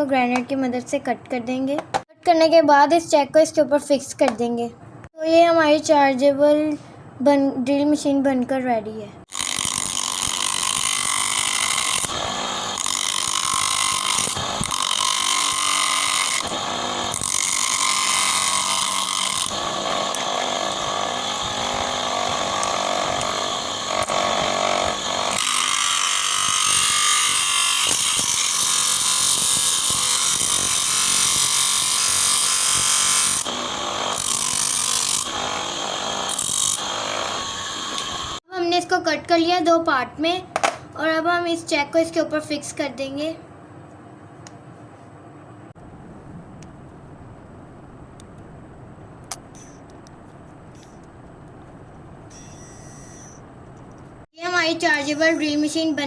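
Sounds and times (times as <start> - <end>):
grinder cutting through plastic: 9.3 - 38.4, 52.3 - 53.4, 54.5 - 55.6.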